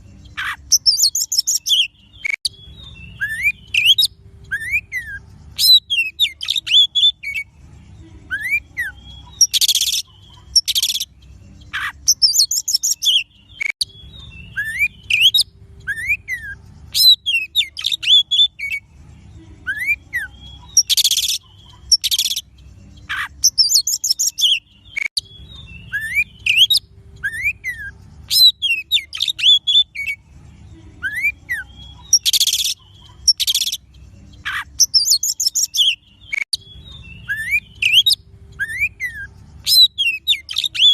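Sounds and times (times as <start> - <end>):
bird song with whistled notes: 0.0 - 40.9.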